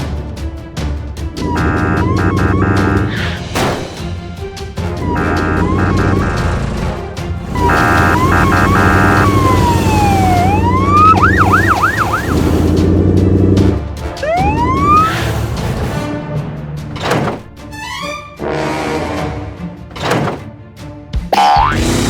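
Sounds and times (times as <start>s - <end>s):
cartoon background music: 0.0s - 22.0s
sliding whistle tones: 7.5s - 12.6s
rising swoops: 7.5s - 15.6s.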